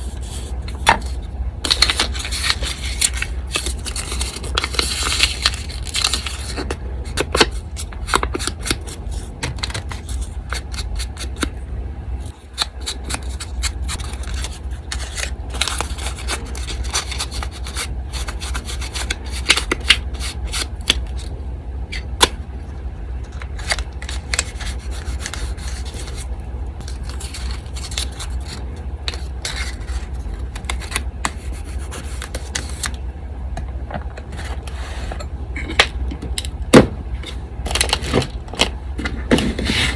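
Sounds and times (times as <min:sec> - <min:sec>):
small scrapes and clicks: 0:00.0 - 0:11.5, 0:12.3 - 0:21.3, 0:23.4 - 0:33.0
electric fan humming: 0:00.0 - 0:39.9.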